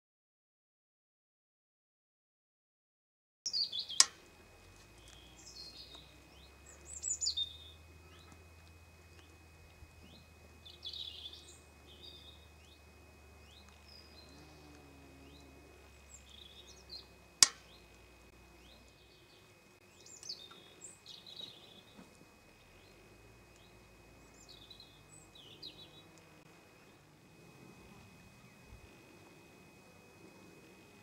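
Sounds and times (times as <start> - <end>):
small birds chirping: 3.5 - 31.0
sharp clicks: 17.4 - 19.0.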